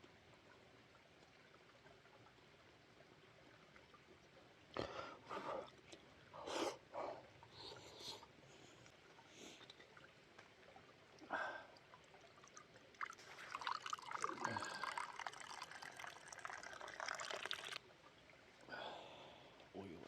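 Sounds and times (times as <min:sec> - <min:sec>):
liquid pouring into a container: 0:12.1 - 0:17.9.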